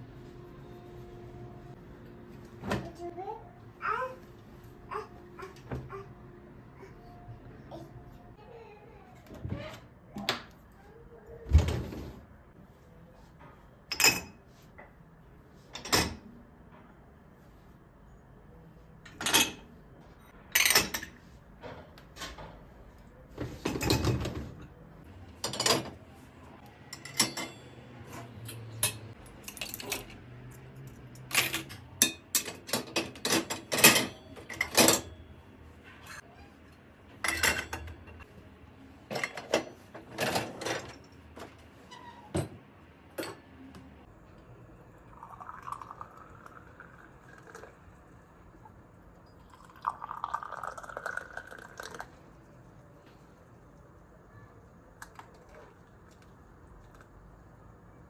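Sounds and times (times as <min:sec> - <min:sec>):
dishes and cutlery clinking: 0:13.9 - 0:14.5, 0:20.5 - 0:22.6, 0:23.4 - 0:26.1, 0:26.8 - 0:35.2, 0:37.2 - 0:38.3, 0:39.1 - 0:41.2.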